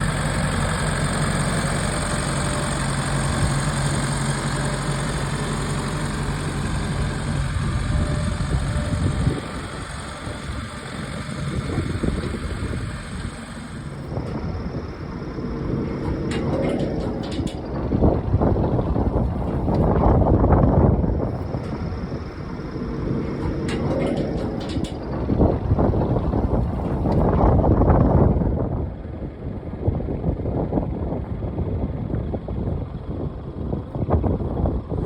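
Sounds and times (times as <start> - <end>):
engine idling: 0.0 - 35.0
wind on microphone rumble: 5.5 - 35.0.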